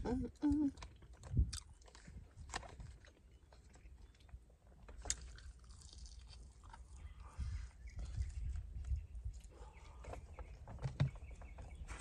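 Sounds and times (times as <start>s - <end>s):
person chewing fried chicken: 0.4s - 7.4s.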